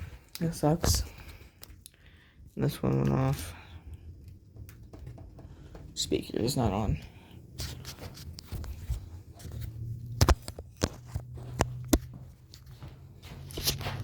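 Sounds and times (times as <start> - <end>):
low steady hum: 0.0 - 14.0
clicks and knocks of handling: 7.6 - 14.0.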